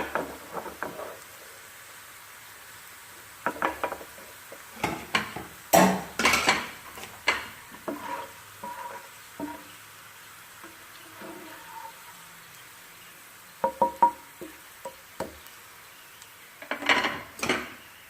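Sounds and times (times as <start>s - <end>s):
spoon scraping a frying pan: 0.0s - 1.5s, 3.4s - 9.8s, 10.6s - 12.4s, 16.6s - 17.8s
garlic sizzling in oil: 0.0s - 18.0s.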